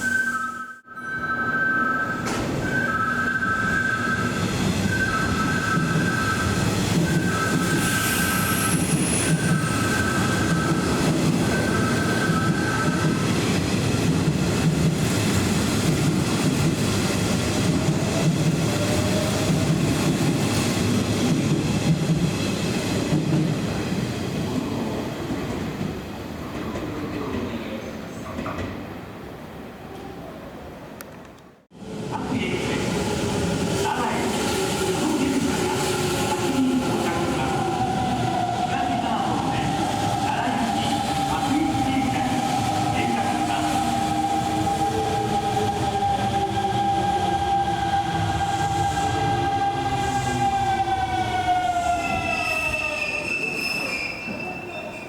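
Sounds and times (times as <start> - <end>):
train wheels rumbling on rail: 2.2 - 29.0
faint high squeal: 52.0 - 55.0.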